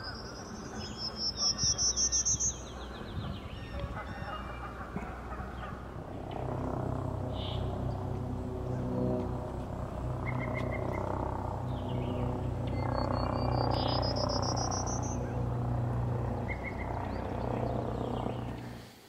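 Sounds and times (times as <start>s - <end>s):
bird singing buzzy notes: 0.0s - 18.8s
low steady hum: 0.0s - 19.0s.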